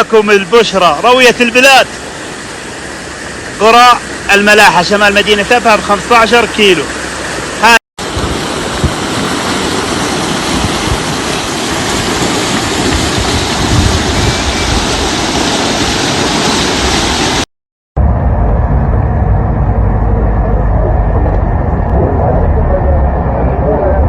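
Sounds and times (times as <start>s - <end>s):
storm water rushing: 0.0s - 24.0s
deep rough rumble: 11.8s - 15.2s, 18.0s - 24.0s.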